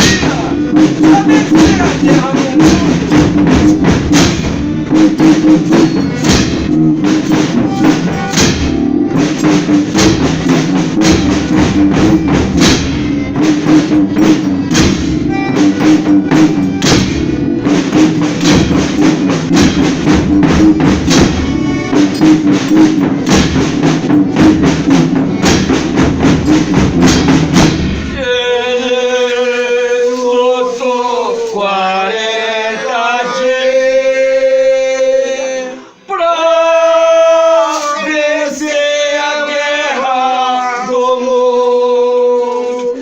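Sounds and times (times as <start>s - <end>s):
held notes: 0.0s - 30.4s
drums beating steady rhythm: 0.0s - 35.2s.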